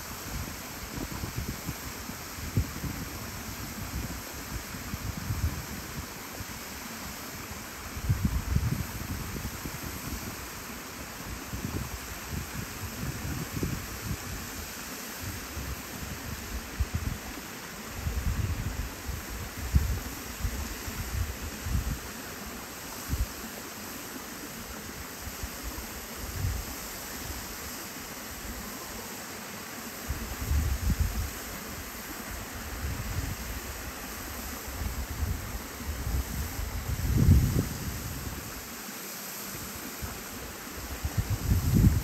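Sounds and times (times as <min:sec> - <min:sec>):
wind rumble on microphone: 0:00.0 - 0:06.6, 0:07.8 - 0:22.2, 0:24.9 - 0:27.7, 0:30.1 - 0:38.6, 0:40.8 - 0:42.0.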